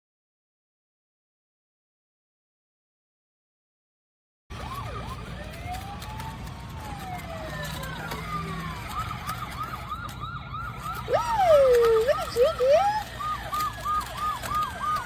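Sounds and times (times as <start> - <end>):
toy car electronic siren: 4.5 - 15.0.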